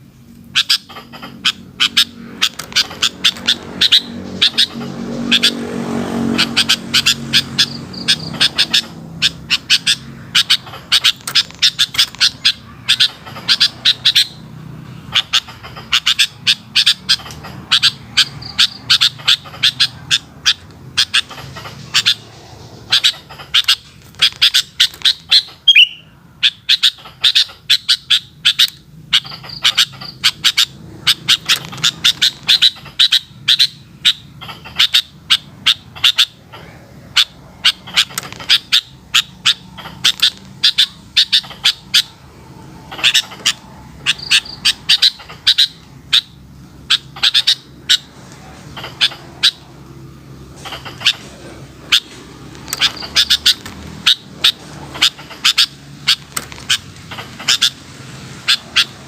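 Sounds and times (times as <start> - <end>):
bird calling rapid sharp notes: 0.3 - 59.0.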